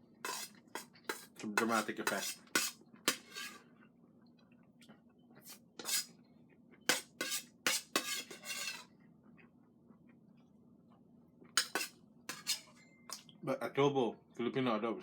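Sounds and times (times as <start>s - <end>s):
utensils scraping on a plate: 0.2s - 3.6s, 5.5s - 6.2s, 6.9s - 8.9s, 11.6s - 12.8s.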